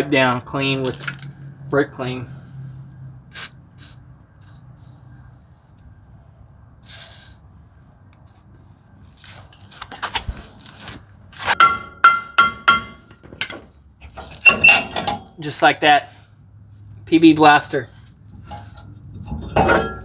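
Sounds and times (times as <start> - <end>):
aerosol spray hiss: 3.3 - 5.7, 6.8 - 7.4
ringing metallic taps: 11.6 - 13.6
metal tools clinking: 18.4 - 20.0.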